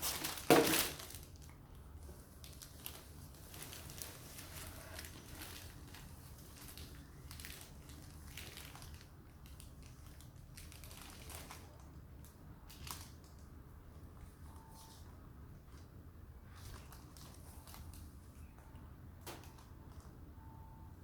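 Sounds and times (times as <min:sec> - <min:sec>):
packaging crinkling: 0:00.0 - 0:13.5, 0:16.4 - 0:18.6
low steady hum: 0:00.0 - 0:21.0.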